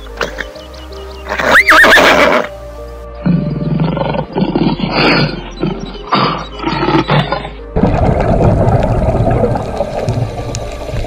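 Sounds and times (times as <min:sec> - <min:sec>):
background music: 0:00.0 - 0:11.0
horse whinnying: 0:01.3 - 0:02.5.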